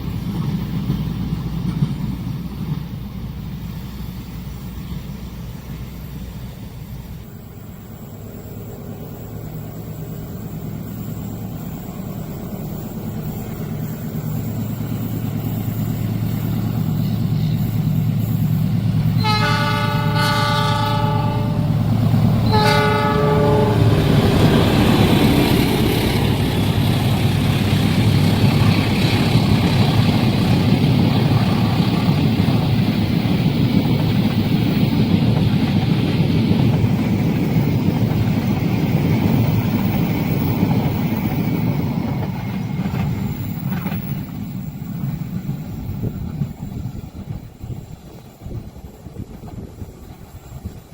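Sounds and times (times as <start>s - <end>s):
train approaching hum: 0.0s - 50.9s
wheels rumbling on rails: 0.0s - 50.9s
locomotive horn blasts: 19.2s - 21.8s, 22.4s - 24.4s.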